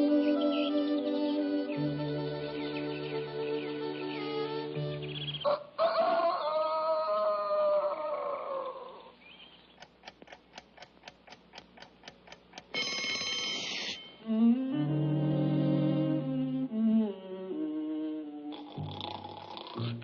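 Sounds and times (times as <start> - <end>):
clock ticking: 9.8 - 14.2
alarm clock bell ringing: 12.7 - 14.2.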